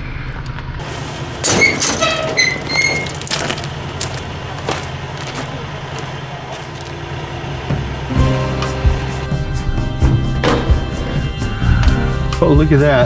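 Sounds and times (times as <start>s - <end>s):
low mechanical hum: 0.8s - 9.3s
metallic clanks and knocks: 0.8s - 9.3s.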